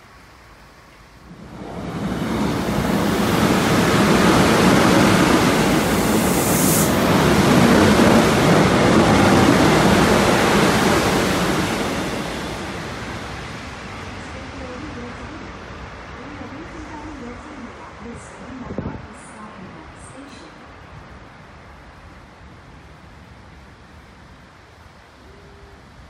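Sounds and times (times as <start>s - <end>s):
train passing at speed: 0.0s - 25.7s
brief high hiss: 6.2s - 7.0s.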